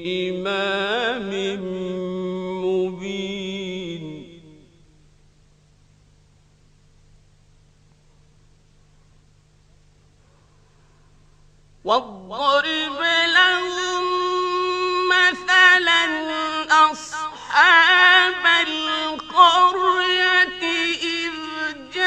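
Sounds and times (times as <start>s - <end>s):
man chanting melodically: 0.0s - 4.8s, 11.8s - 22.0s.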